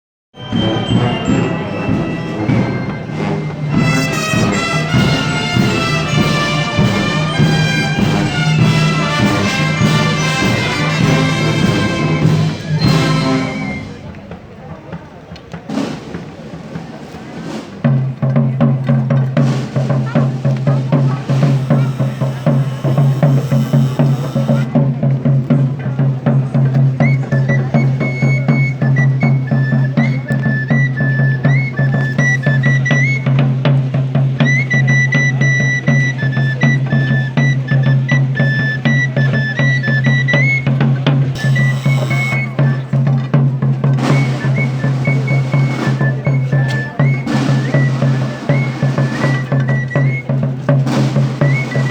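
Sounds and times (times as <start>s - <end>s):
high melody line: 0.4s - 14.1s, 21.2s - 24.7s, 34.5s - 43.1s
low brass line: 0.4s - 14.3s, 19.9s - 24.8s, 41.2s - 49.6s
snare drum roll: 0.5s - 30.6s, 31.4s - 51.9s.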